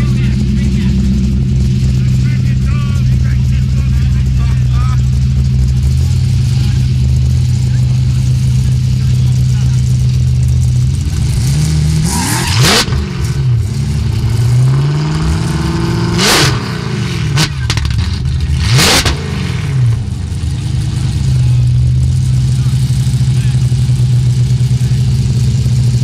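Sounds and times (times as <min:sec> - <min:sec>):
car engines idling: 0:00.0 - 0:26.0
engine revving: 0:00.0 - 0:26.0.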